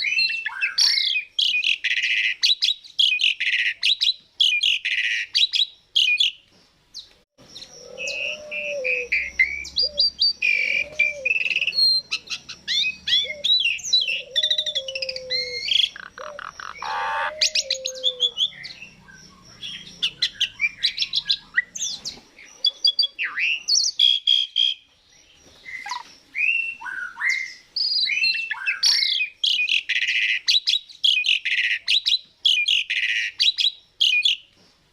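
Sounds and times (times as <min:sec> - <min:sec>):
starling whistling and chirping: 0:07.5 - 0:24.8, 0:25.4 - 0:34.4
low looping whistles: 0:07.6 - 0:21.4.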